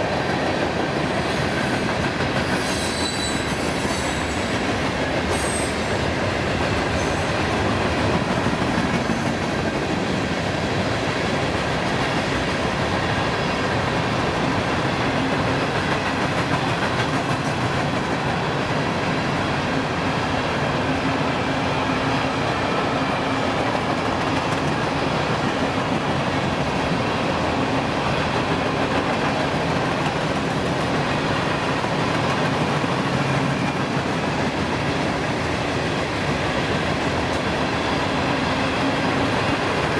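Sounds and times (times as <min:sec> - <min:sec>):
train cars rolling on track: 0:00.0 - 0:39.9
faint high wheel squeal: 0:01.0 - 0:04.6, 0:05.3 - 0:06.0.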